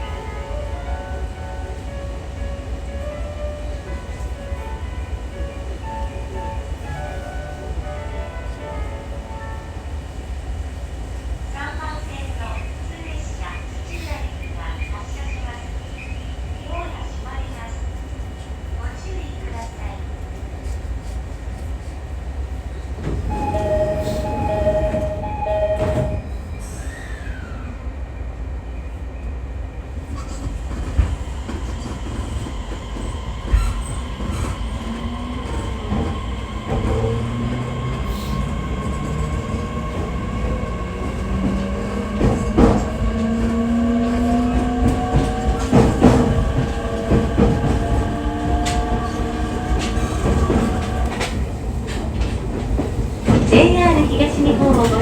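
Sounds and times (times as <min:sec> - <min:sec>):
train car rumble: 0:00.0 - 0:27.7, 0:30.0 - 0:55.0.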